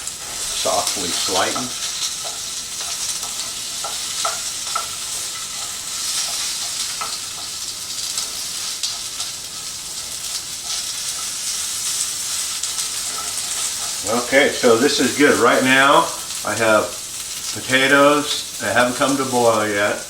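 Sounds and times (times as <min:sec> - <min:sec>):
stirring scrapes in skillet: 0:00.0 - 0:16.4
vegetables sizzling in oil: 0:00.0 - 0:20.0.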